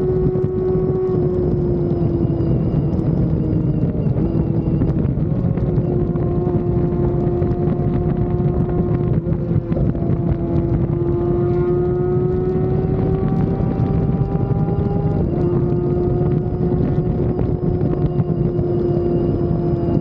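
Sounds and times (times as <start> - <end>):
motorcycle engine running: 0.0 - 20.0
wind rush on microphone: 0.0 - 20.0.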